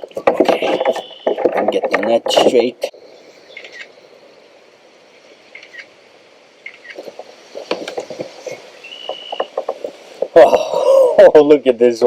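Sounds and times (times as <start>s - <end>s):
hollow knocks against kayak: 0.0s - 2.6s, 7.0s - 10.7s.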